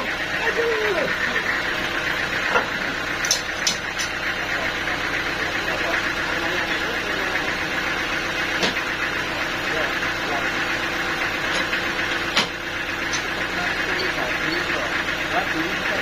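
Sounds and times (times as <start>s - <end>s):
sawmill machinery drone: 0.0s - 16.0s.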